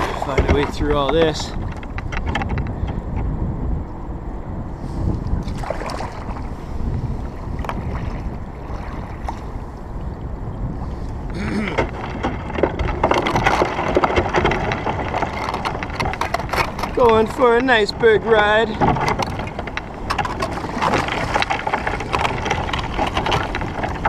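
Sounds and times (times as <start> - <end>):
wind rumble on microphone: 0.0 - 24.0
paddle strokes in water: 4.8 - 24.0.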